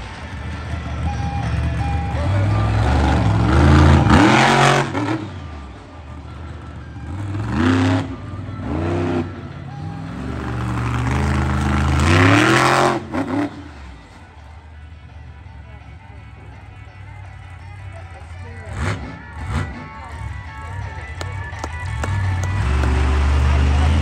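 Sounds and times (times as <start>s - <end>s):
monster truck engine revving: 0.0s - 14.9s, 18.6s - 24.0s.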